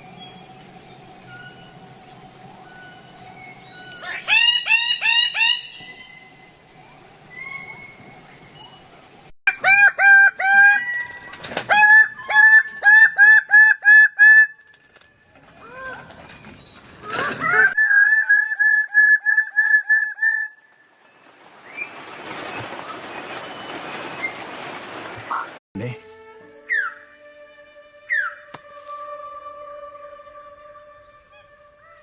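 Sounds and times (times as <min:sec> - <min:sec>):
bird calling hooked notes: 0:26.6 - 0:27.2, 0:28.1 - 0:29.2.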